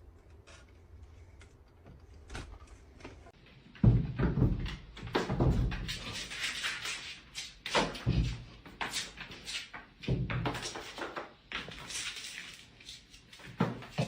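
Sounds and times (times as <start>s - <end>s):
irregular thumps and knocks: 1.4s - 6.1s.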